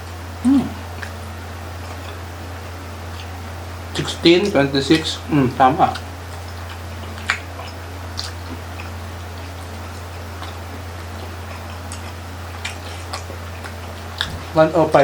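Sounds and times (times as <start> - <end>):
steady low hum: 0.0 - 15.0
mouth clicks and smacks of chewing: 0.9 - 1.2, 1.8 - 2.2, 3.1 - 5.2, 5.8 - 14.5.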